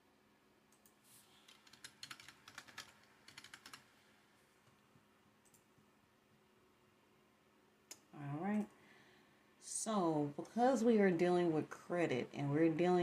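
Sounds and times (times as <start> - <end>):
typing on computer keyboard: 0.8 - 3.9.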